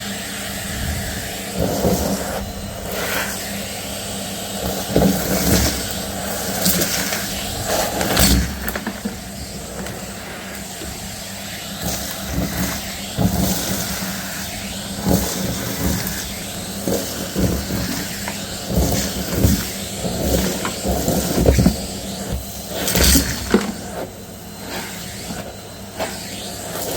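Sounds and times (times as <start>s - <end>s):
vacuum cleaner motor hum: 0.0s - 26.9s
debris crackling up vacuum hose: 0.4s - 26.9s
nozzle bumping floor: 4.7s - 11.2s, 15.0s - 26.2s.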